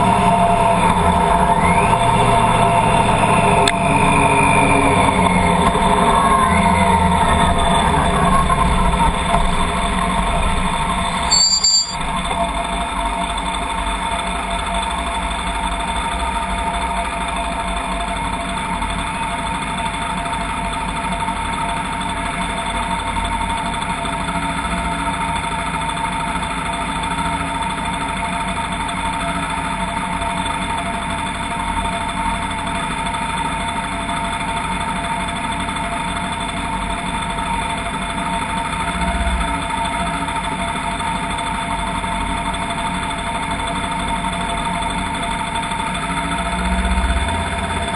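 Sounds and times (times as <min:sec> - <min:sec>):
vehicle engine running: 0:12.6 - 0:47.9.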